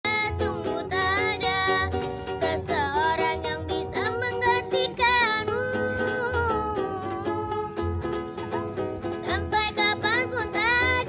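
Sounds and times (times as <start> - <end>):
children singing: 0.1 - 7.6
small string instrument strummed: 0.1 - 11.0.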